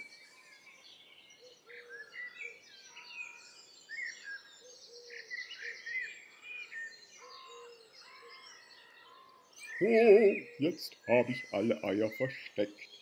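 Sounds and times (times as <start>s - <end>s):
songbirds singing and chirping: 0.0s - 13.0s
fast buzzy bird trill: 9.7s - 13.0s.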